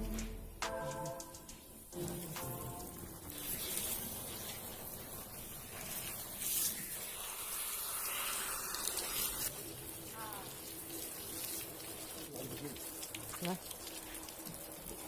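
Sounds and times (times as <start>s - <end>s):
spray hissing: 1.9s - 12.0s.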